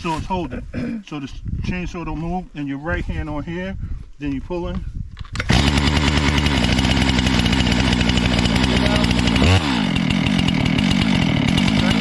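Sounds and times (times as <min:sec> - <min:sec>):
starter cord pull: 0:05.2 - 0:06.4
chainsaw engine running: 0:05.4 - 0:12.0.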